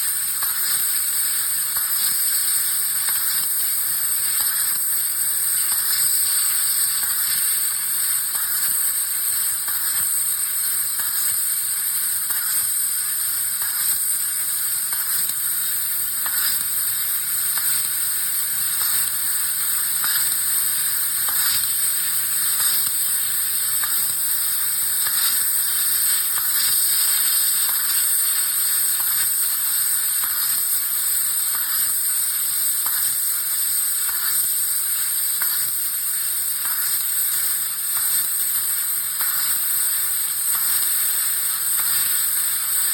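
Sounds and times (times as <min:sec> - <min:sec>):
laser cutting hissing sizzle: 0:00.0 - 0:42.9
fine crackling ticks: 0:16.2 - 0:16.9, 0:18.8 - 0:21.8, 0:22.4 - 0:30.8, 0:31.5 - 0:32.0, 0:32.8 - 0:33.2, 0:33.8 - 0:42.8.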